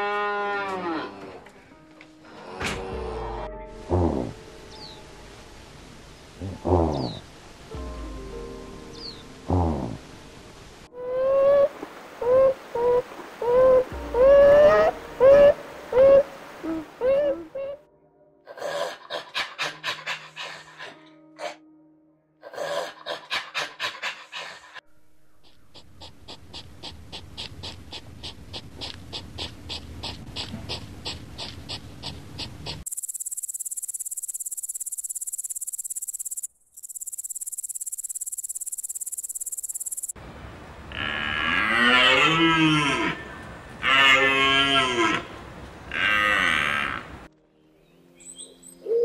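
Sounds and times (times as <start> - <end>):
chimpanzee panting calls: 18.6 - 21.6, 22.5 - 24.8, 25.4 - 32.9
crickets chirping: 32.7 - 40.7.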